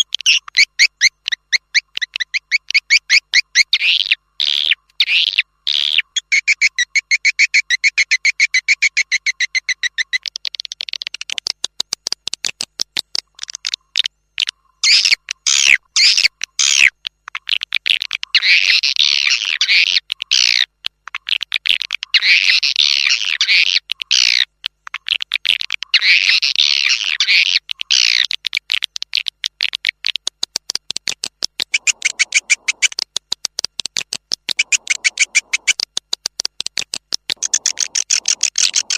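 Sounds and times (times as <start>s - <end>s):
swiftlets chirping and twittering: 31.7s - 33.0s, 34.6s - 35.8s, 37.4s - 38.9s.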